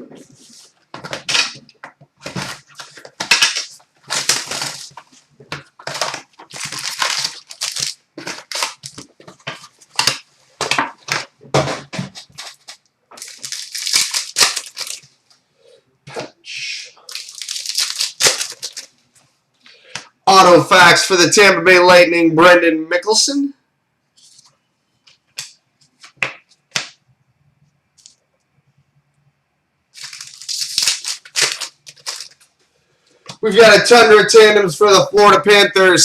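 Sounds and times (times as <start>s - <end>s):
foil packs being torn open: 2.3s - 9.1s, 12.2s - 15.1s, 17.0s - 18.9s, 30.0s - 32.5s.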